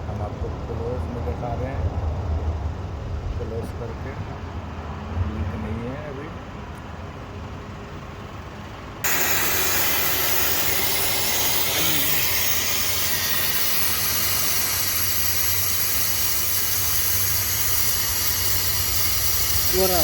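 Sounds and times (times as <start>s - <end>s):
pressurised gas hissing: 9.0s - 20.0s.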